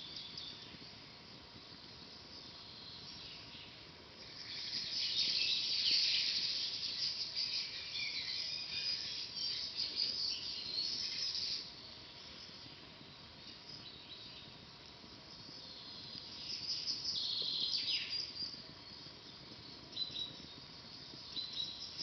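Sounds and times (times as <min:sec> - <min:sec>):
songbird twittering: 0:02.4 - 0:12.3, 0:15.4 - 0:22.0.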